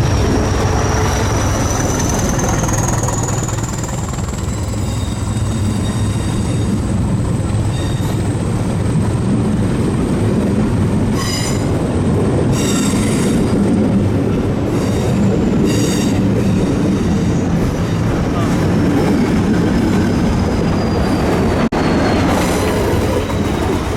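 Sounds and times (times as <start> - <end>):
train wheels squealing: 0.0 - 6.9, 7.6 - 8.4, 11.1 - 11.8, 12.5 - 13.6, 14.7 - 17.5, 19.6 - 23.9
train rumbling: 0.0 - 23.9.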